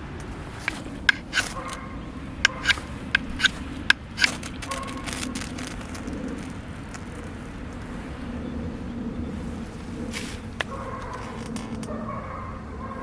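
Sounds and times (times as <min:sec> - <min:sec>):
ferro rod scraping: 0:00.4 - 0:08.2.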